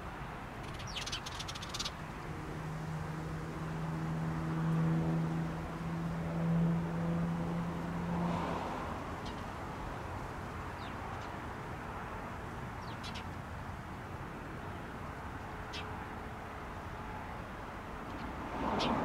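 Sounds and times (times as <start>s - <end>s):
small birds chirping: 0.6s - 2.2s, 9.2s - 9.5s, 10.6s - 11.5s, 12.7s - 13.4s, 15.7s - 16.0s.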